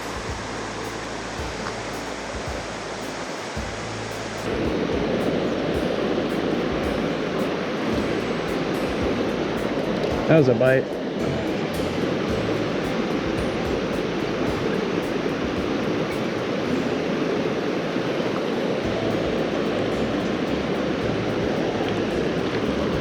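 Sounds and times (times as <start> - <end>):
creek water rushing over rocks: 0.0 - 23.0.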